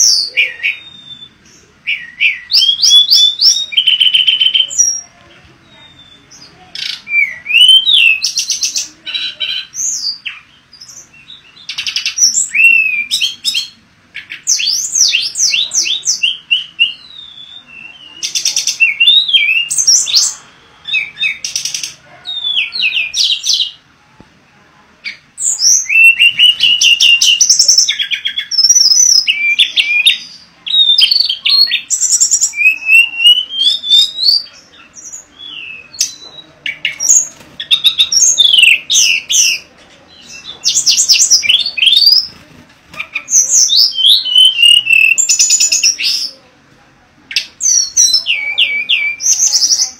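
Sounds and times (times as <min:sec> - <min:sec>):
bird singing whistles and trills: 0:00.0 - 0:04.9, 0:05.8 - 0:08.7, 0:14.5 - 0:21.7, 0:25.4 - 0:34.5, 0:43.4 - 0:46.2, 0:47.3 - 0:49.9.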